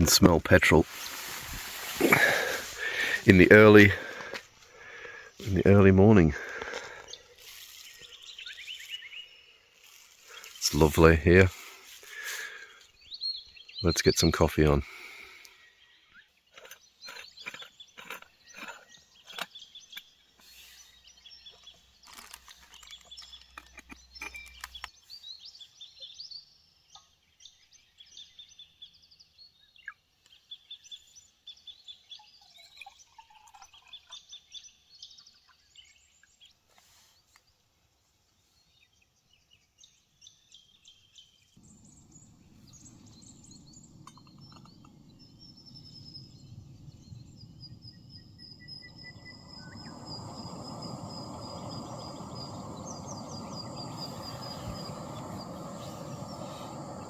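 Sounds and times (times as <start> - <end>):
camp stove burner rushing: 0.0 - 8.1, 9.8 - 12.8, 41.6 - 57.0
birds chirping: 0.0 - 37.6, 38.4 - 57.0.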